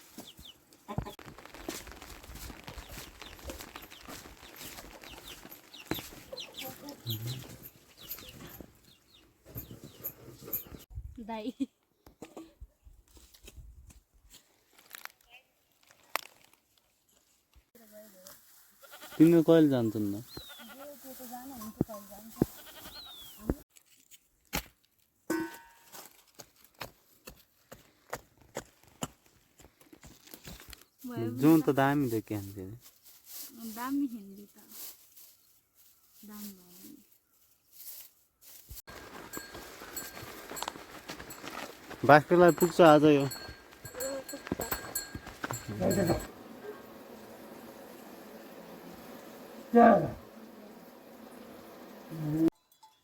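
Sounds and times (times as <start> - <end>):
chickens clucking: 5.0 - 9.0.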